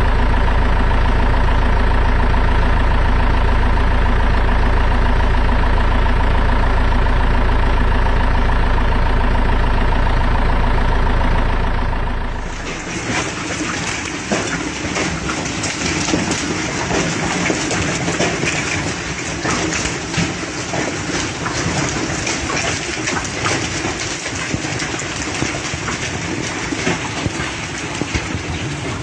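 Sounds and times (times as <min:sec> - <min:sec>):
hailstones pelting down: 0:12.4 - 0:29.0.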